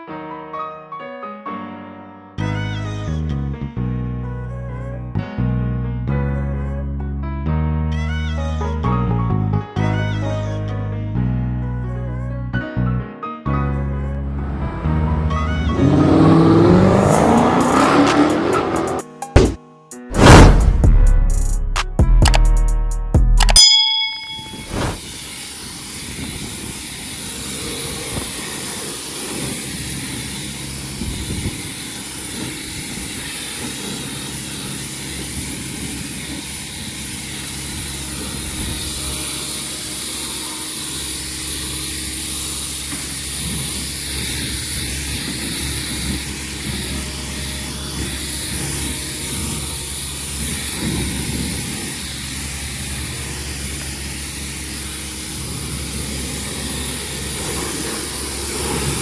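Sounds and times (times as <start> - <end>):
uneven low rumbling: 13.6 - 19.0
engine running: 13.6 - 19.5, 24.2 - 59.0
high hiss: 24.4 - 59.0.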